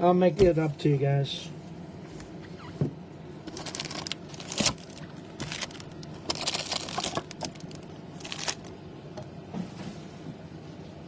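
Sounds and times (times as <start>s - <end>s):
foil wrappers crinkling and tearing: 3.5s - 8.7s.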